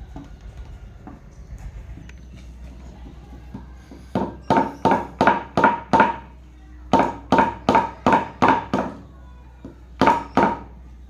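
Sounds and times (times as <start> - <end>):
hammer tapping on metal: 3.4 - 10.7.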